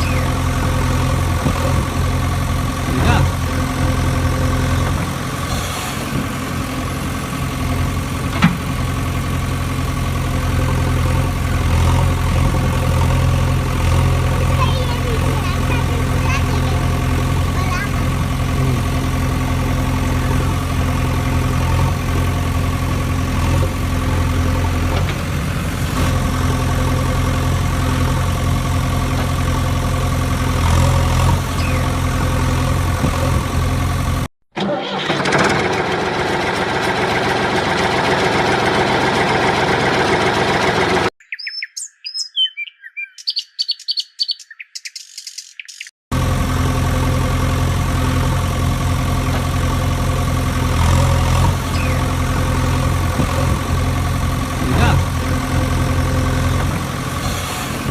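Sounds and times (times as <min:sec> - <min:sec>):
high chirping sounds: 0:00.0 - 0:00.4, 0:31.6 - 0:32.0, 0:41.2 - 0:45.9, 0:51.7 - 0:52.2
heavy truck engine idling: 0:00.0 - 0:34.3, 0:35.0 - 0:41.1, 0:46.1 - 0:57.9.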